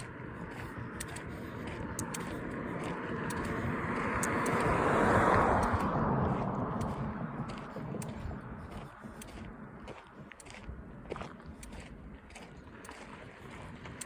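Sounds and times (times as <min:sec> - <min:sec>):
car passing by: 0:00.0 - 0:09.8.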